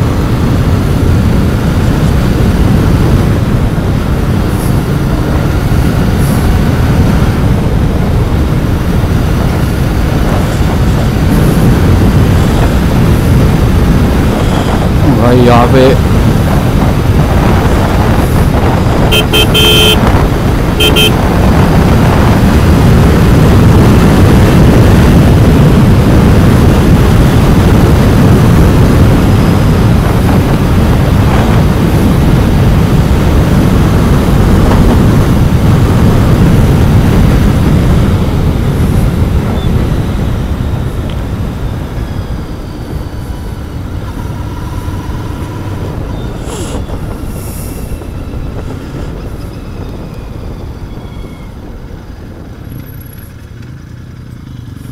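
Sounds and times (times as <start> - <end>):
motorcycle engine riding: 0.0 - 54.9
road noise: 0.0 - 54.9.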